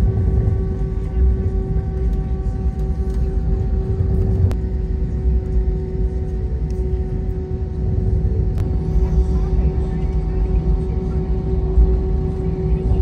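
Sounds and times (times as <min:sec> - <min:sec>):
aircraft cabin rumble: 0:00.0 - 0:13.0.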